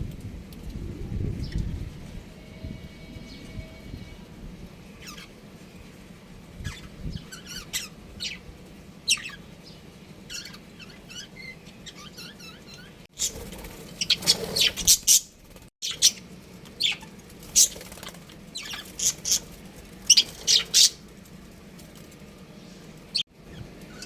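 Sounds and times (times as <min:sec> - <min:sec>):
budgerigars chirping: 0:05.0 - 0:05.3, 0:06.6 - 0:08.4, 0:09.1 - 0:09.4, 0:10.3 - 0:19.5, 0:20.1 - 0:21.0.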